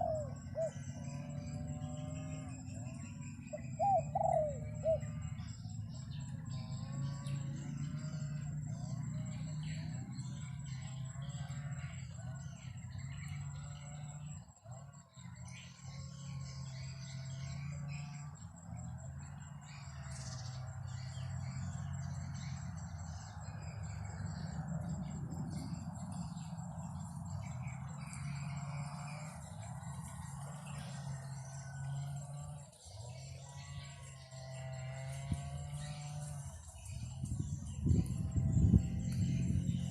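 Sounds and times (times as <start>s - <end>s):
birds calling and chirping: 0.0s - 39.9s
high-pitched insect trill: 0.0s - 39.9s.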